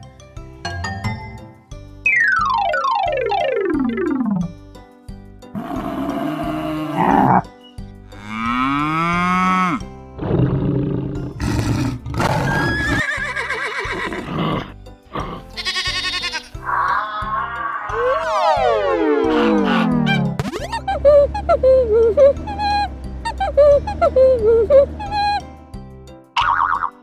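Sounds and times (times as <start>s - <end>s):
light background music: 0.0s - 27.0s
animal call sound effects: 16.6s - 25.4s.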